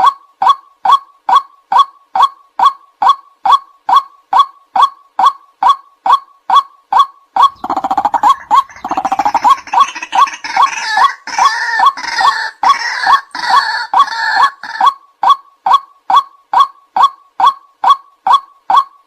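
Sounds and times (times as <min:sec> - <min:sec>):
waterhen calling short sharp notes: 0:07.4 - 0:15.0
raucous pulsing croaking chorus: 0:07.5 - 0:14.8.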